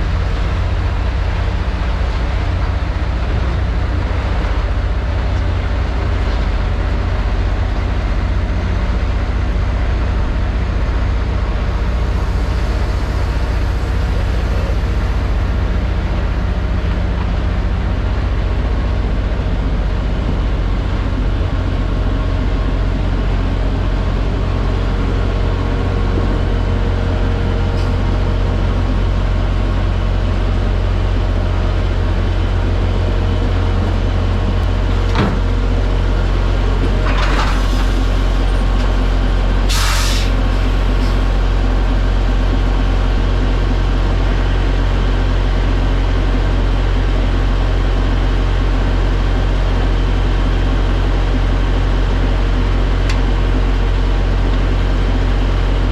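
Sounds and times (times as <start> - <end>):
diesel truck engine droning: 0.0 - 55.9
air brake hisses: 39.7 - 41.4.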